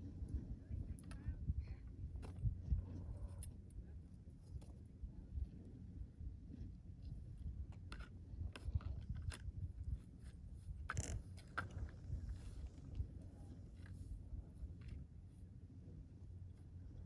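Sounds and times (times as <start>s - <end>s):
crunches and scrapes on snow: 2.2s - 15.4s.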